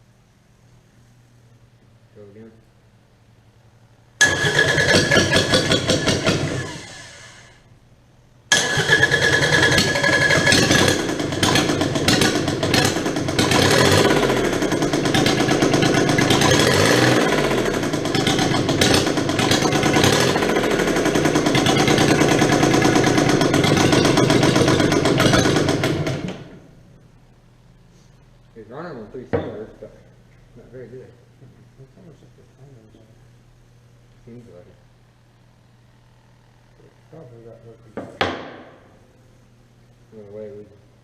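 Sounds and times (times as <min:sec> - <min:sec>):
diesel engine running unevenly: 0:08.5 - 0:26.3.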